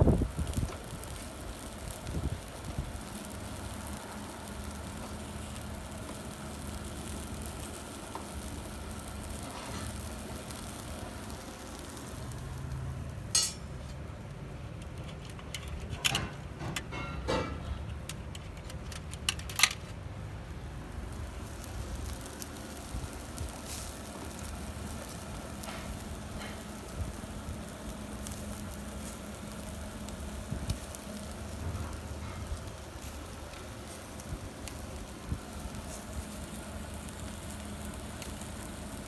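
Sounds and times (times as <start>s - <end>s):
low rumble of outdoor cooking: 0.0s - 39.0s
cookware clinking: 13.4s - 13.8s.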